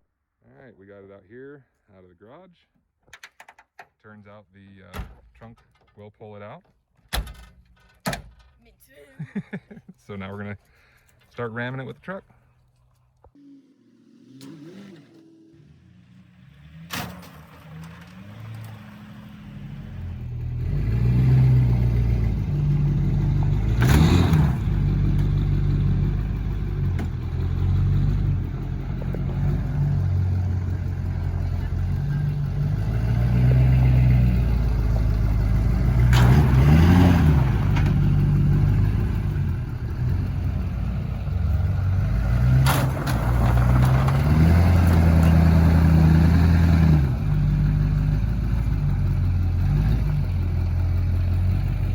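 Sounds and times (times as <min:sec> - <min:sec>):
diesel engine revving: 0:13.4 - 0:51.9
bumper crashing into car: 0:42.5 - 0:45.6.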